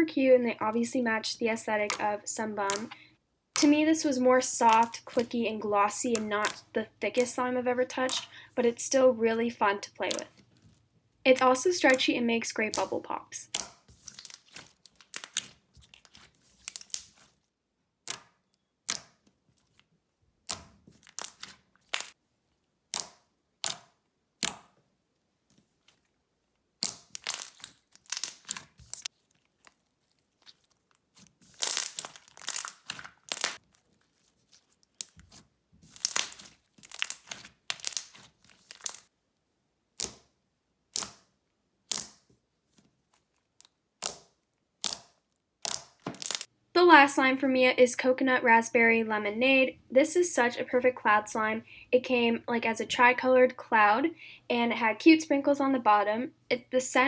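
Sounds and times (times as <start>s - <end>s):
slime squishing: 1.5s - 3.0s, 3.6s - 9.0s, 10.0s - 22.2s, 26.8s - 39.1s, 39.9s - 46.5s.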